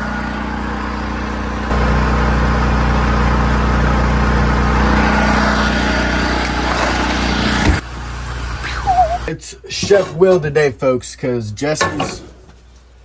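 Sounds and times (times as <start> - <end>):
small engine running: 0.0 - 9.3.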